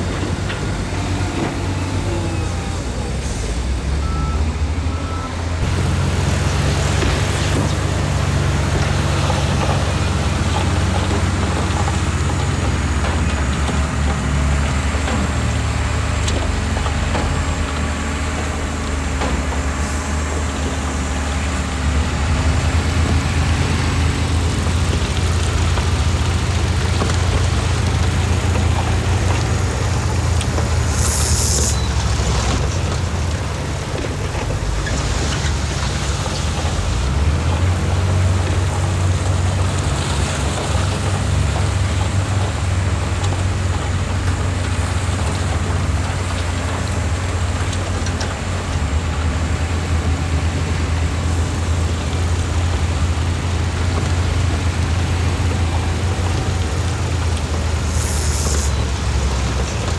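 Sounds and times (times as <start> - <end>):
diesel construction machinery running: 0.0 - 59.9
short sharp hiss: 30.9 - 31.9, 57.8 - 58.8.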